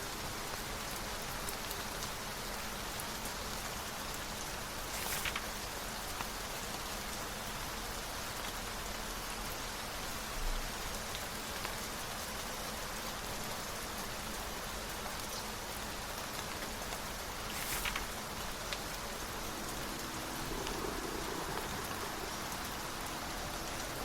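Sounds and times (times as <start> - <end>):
steady rain falling: 0.0 - 24.0
brief rustle: 4.8 - 5.7, 17.4 - 21.8.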